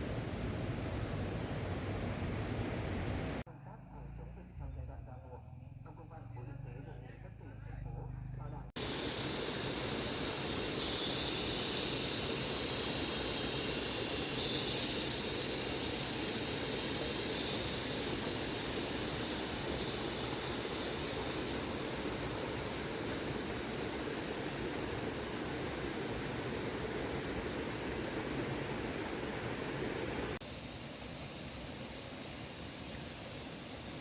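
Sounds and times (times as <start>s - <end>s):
outdoor rushing hiss: 0.0s - 3.5s, 8.8s - 34.0s.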